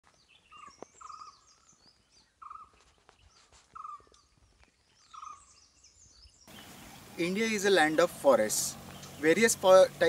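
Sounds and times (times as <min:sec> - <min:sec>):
faint high bird chirps: 0:00.2 - 0:07.4.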